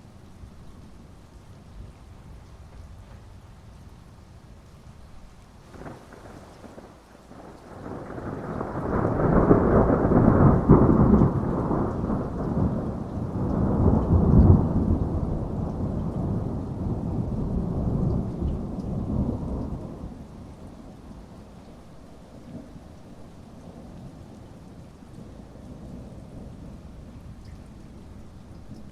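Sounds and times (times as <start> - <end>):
heavy rain: 0.0 - 28.9
rolling thunder: 5.7 - 20.8.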